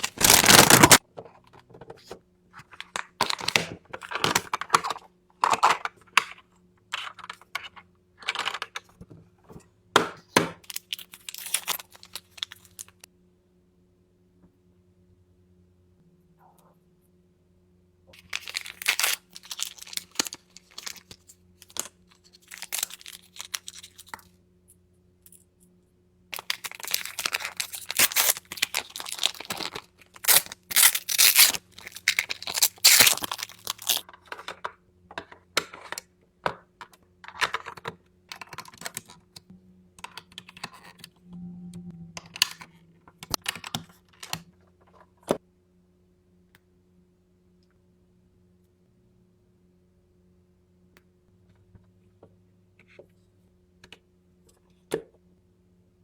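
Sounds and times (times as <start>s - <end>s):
plastic packaging crinkling: 0.0s - 1.0s, 10.6s - 13.0s, 18.2s - 24.2s, 26.4s - 34.1s.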